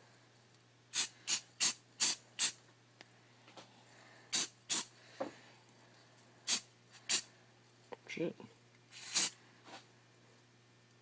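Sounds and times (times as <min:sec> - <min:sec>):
spray can hissing bursts: 0:00.9 - 0:02.6, 0:04.3 - 0:04.9, 0:06.5 - 0:07.3, 0:08.9 - 0:09.4.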